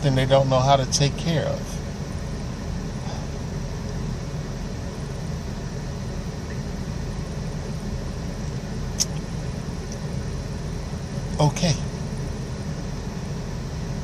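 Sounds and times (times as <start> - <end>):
low mechanical hum: 0.0 - 14.0
sharp click: 9.0 - 9.2.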